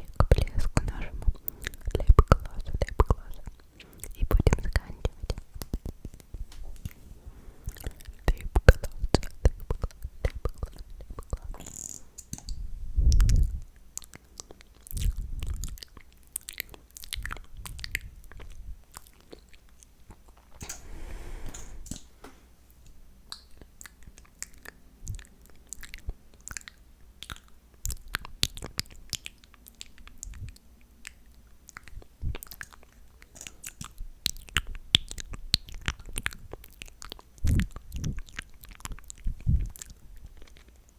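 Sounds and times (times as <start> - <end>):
breathing: 7.0 - 7.9, 20.6 - 22.6
wet mouth clicks and smacks: 23.3 - 40.7.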